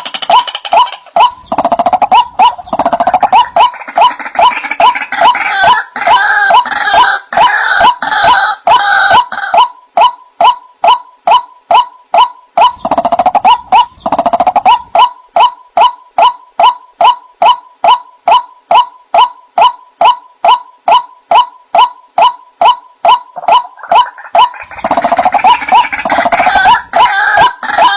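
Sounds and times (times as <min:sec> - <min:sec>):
harsh bird chatter: 0:00.0 - 0:05.8, 0:12.6 - 0:15.5, 0:23.4 - 0:27.8
bird calling repeated short notes: 0:07.8 - 0:26.8.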